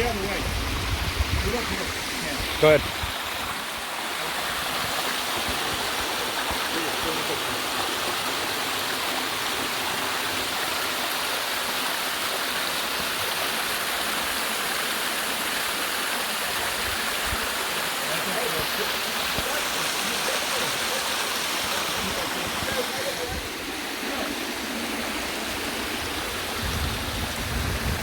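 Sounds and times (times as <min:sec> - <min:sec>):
waterfall and creek rushing: 0:00.0 - 0:28.0.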